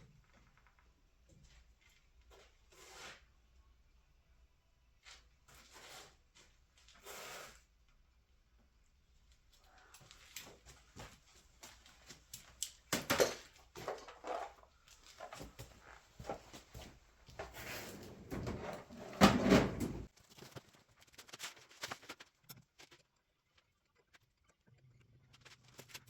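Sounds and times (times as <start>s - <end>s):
tools and parts clicking and knocking: 12.6s - 14.6s
tools clattering: 13.0s - 14.6s, 17.5s - 20.1s.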